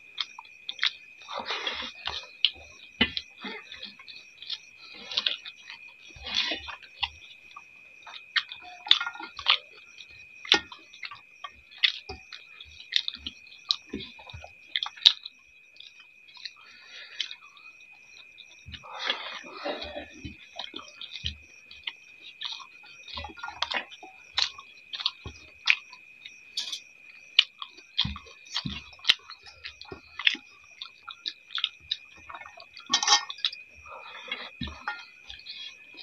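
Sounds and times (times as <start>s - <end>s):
wet chewing and lip-smacking: 0.2s - 36.0s
faint steady high tone: 25.8s - 36.0s.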